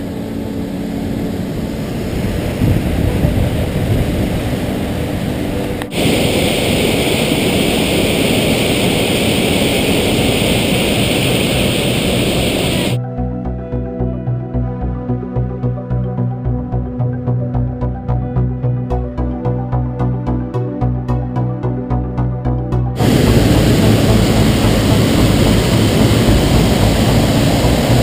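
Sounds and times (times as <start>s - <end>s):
waterfall roaring: 0.0s - 13.0s, 23.0s - 28.0s.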